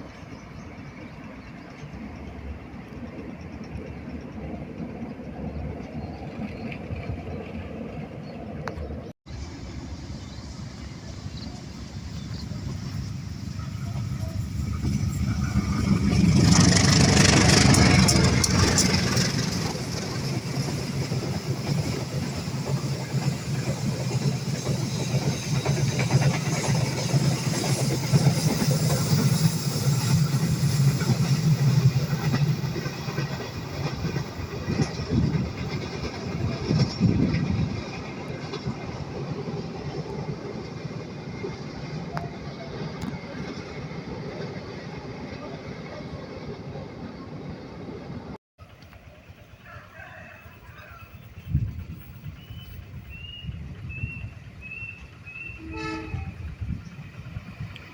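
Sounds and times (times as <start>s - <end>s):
diesel train passing: 0.0s - 57.9s
train wheel clicks: 14.8s - 38.7s.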